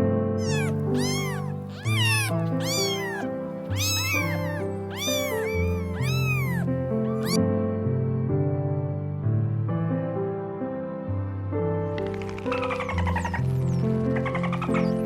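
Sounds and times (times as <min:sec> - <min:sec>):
short animal calls: 0:00.4 - 0:07.4.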